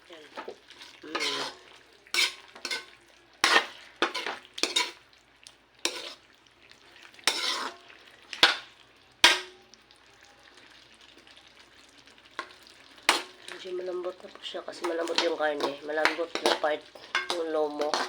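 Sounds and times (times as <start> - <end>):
sauce sizzling in a pan: 0.0 - 18.0
utensil scraping a pan: 0.4 - 5.0, 5.8 - 6.2, 7.2 - 8.6, 13.1 - 13.6, 14.7 - 18.0.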